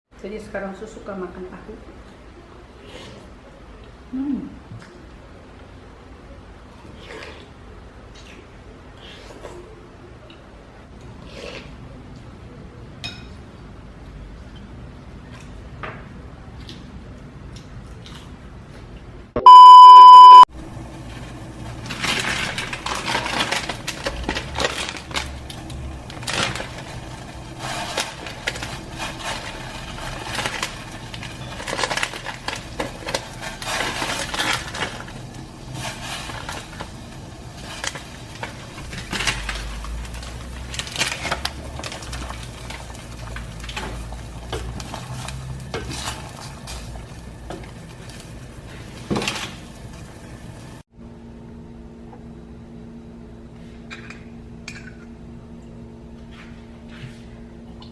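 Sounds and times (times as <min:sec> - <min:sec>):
loud electronic beep: 0:19.4 - 0:20.5.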